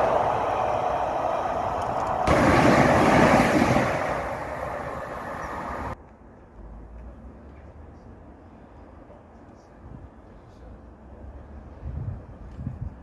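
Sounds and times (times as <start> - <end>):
train rumble: 0.0 - 6.0
faint background noise: 3.2 - 13.0.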